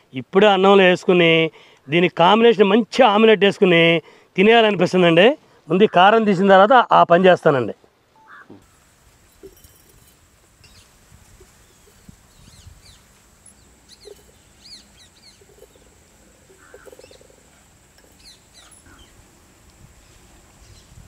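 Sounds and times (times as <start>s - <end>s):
faint bird chirps: 8.2s - 8.7s, 11.5s - 17.4s
thin steady high tone: 13.3s - 17.3s.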